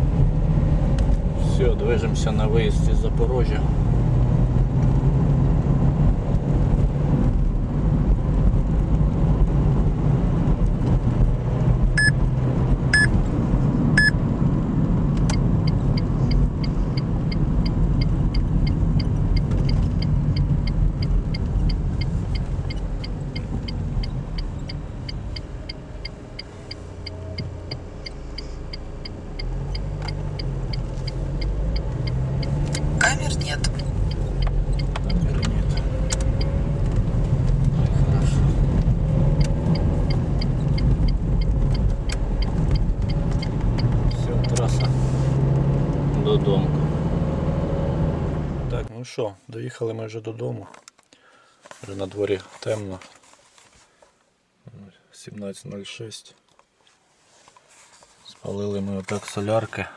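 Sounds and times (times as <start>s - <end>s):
car engine and road rumble: 0.0s - 48.9s, 56.4s - 59.9s
even ticking: 13.0s - 13.2s, 15.3s - 36.6s, 39.4s - 44.9s
short electronic beeps: 13.0s - 13.2s, 14.0s - 14.2s.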